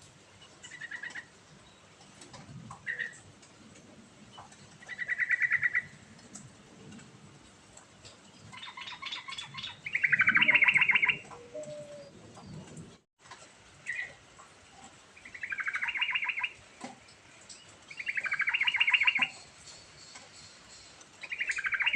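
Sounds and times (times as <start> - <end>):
bird singing rapid trills: 17.9 - 21.9.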